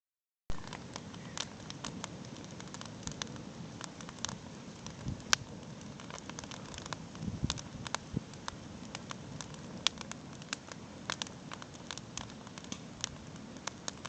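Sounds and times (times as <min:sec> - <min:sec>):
campfire crackling: 0:00.5 - 0:14.0
low hiss: 0:00.5 - 0:14.0.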